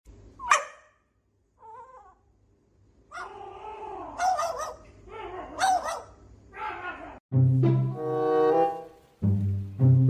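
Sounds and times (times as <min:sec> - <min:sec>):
pet animal crying: 0:01.6 - 0:02.3, 0:03.1 - 0:07.2.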